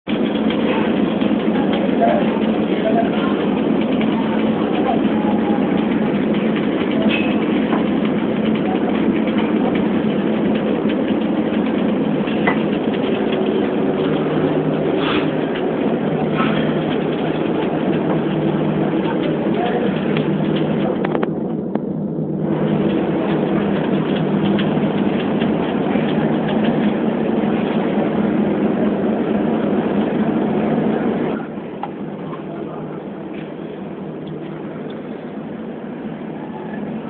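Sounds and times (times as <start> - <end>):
furnace burners rushing: 0.0 - 37.0.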